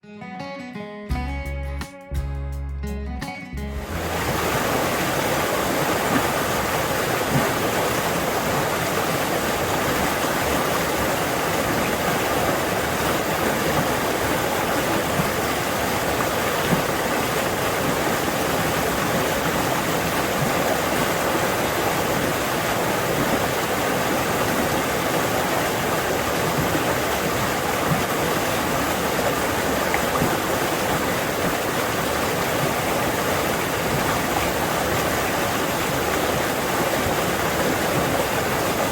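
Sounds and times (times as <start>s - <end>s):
stream rushing over rocks: 3.8s - 38.9s.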